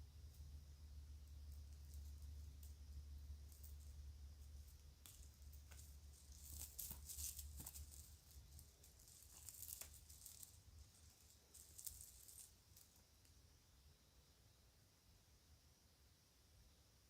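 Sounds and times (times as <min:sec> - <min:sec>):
plastic bag crinkling: 0:05.7 - 0:12.5.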